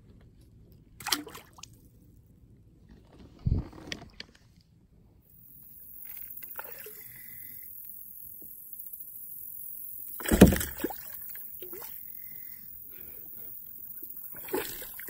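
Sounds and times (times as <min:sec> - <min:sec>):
fish splashing at water surface: 0:01.0 - 0:01.6.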